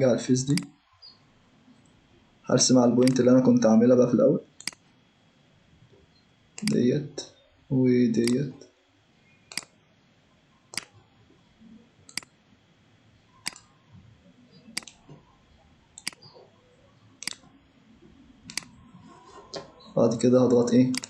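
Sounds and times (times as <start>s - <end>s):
computer mouse clicking: 0.5s - 1.1s, 4.6s - 4.9s, 6.6s - 6.8s, 8.2s - 8.5s, 9.5s - 9.8s, 10.7s - 11.0s, 12.1s - 12.4s, 13.4s - 13.8s, 14.5s - 17.5s, 18.4s - 21.0s.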